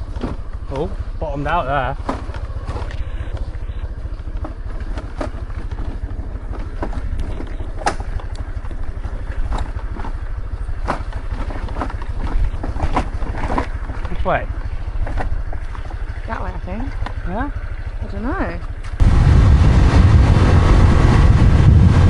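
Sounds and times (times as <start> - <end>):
knocks and rattles: 0.0 - 1.2, 1.8 - 19.1
scooter engine rumble: 0.0 - 22.0
wind on microphone: 19.0 - 22.0.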